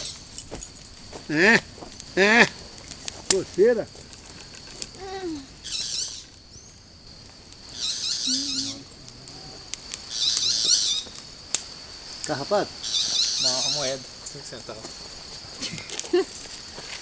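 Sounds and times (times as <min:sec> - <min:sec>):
high insect trill: 0:00.0 - 0:17.0
rapid high-pitched chirping: 0:07.7 - 0:08.9, 0:12.8 - 0:14.0.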